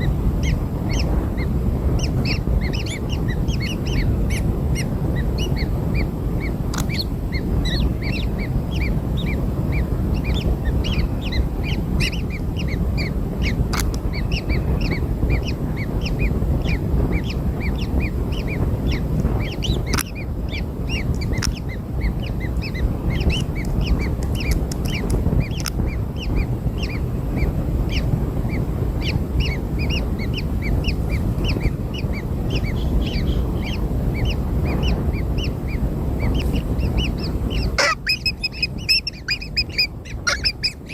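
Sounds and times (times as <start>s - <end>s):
chicks cheeping: 0.0s - 40.9s
low rumbling noise: 0.0s - 40.9s
sharp clicks: 6.7s - 6.9s, 13.7s - 14.0s, 23.6s - 25.8s.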